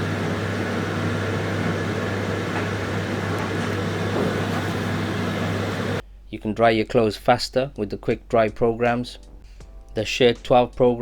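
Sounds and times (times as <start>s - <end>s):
tumble dryer running: 0.0s - 6.0s.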